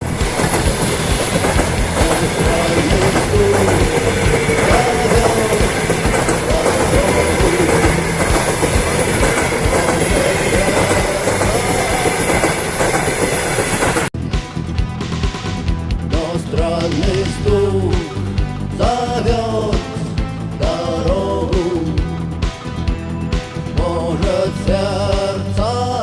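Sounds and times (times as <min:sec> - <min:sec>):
moving vehicle running noise: 0:00.0 - 0:26.0
repeated knocking: 0:00.1 - 0:12.6.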